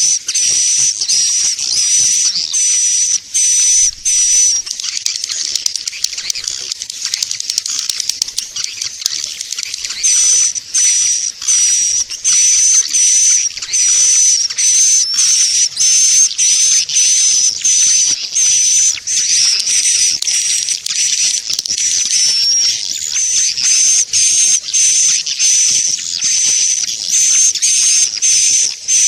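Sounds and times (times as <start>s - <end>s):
swiftlet twittering: 0.0s - 29.0s.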